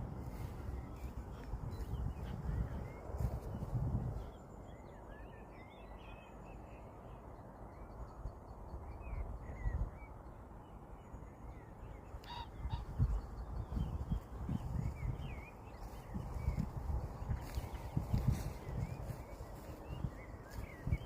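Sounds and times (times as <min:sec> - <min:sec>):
steady low rumble: 0:00.0 - 0:05.0, 0:11.5 - 0:21.0
birds chirping: 0:00.0 - 0:21.0.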